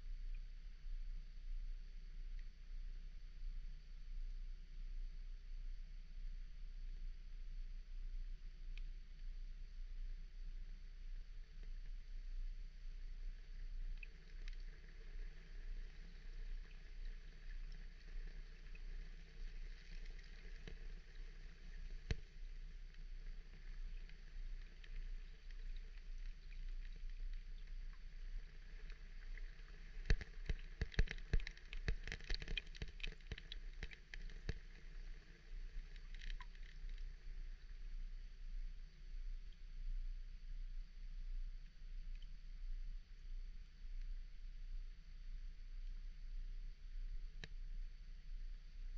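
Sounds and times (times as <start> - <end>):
water ambience: 0.0 - 48.9
small clicks and ticks: 8.4 - 40.0, 41.6 - 42.8, 45.7 - 48.3.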